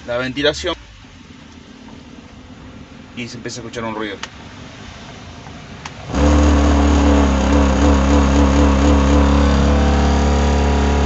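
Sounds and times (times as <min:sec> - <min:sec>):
blower motor humming: 0:06.1 - 0:11.0.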